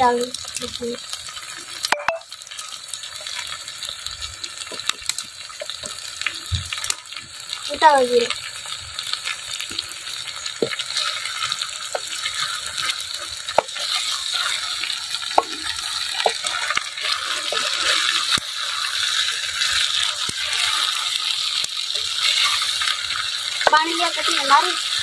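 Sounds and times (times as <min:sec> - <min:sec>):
potatoes sizzling in a pot: 0:00.0 - 0:25.0
wooden spoon scraping a pot: 0:10.6 - 0:23.8.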